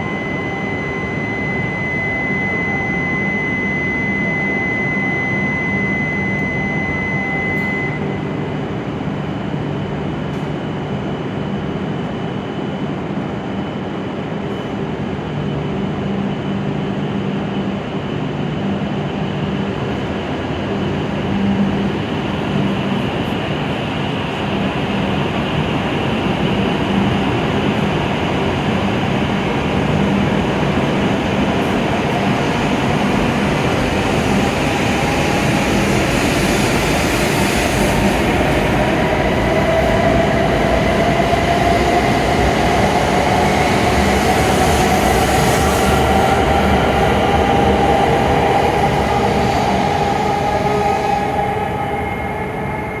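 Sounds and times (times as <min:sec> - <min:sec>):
train running noise: 0:00.0 - 0:53.0.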